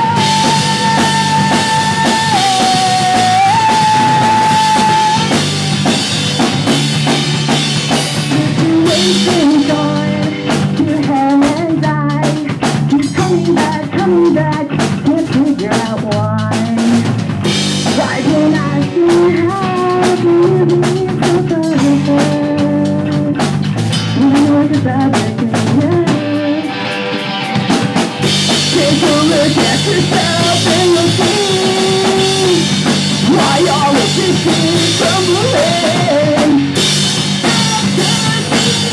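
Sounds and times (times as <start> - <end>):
electric guitars: 0.0 - 38.9
pop punk band playing live: 0.0 - 38.9.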